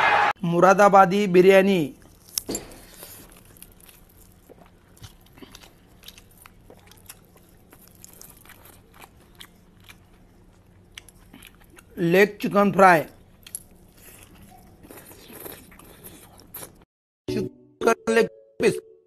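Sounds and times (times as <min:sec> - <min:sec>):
person chewing and crunching food: 0:01.9 - 0:12.0, 0:13.0 - 0:16.9.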